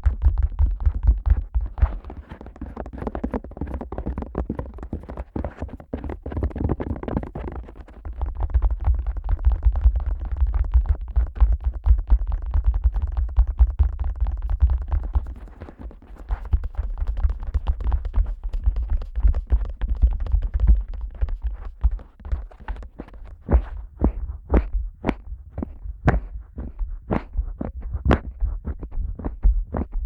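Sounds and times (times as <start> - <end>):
fingers tapping on microphone: 0.0 - 30.0.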